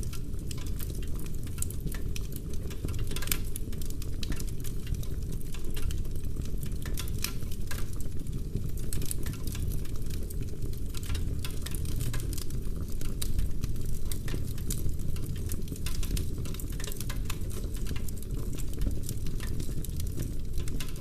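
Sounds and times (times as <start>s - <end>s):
fire low rumble: 0.0s - 21.0s
wood fire crackling and popping: 0.0s - 21.0s.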